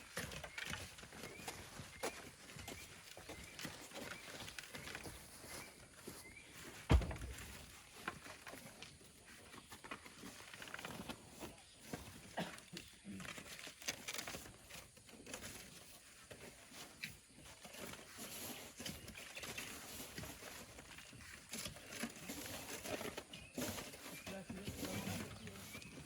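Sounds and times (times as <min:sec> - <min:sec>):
hand tools scraping rock: 0:14.3 - 0:26.0.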